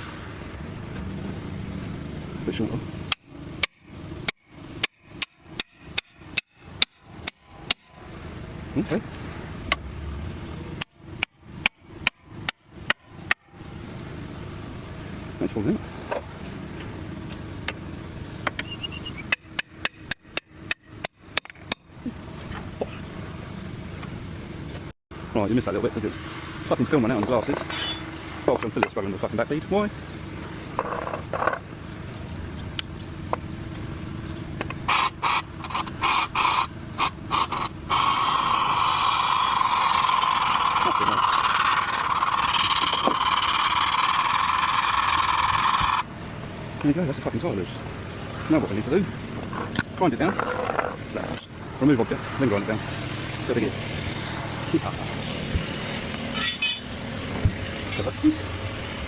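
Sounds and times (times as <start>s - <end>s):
motor-driven machine running: 34.9s - 46.1s.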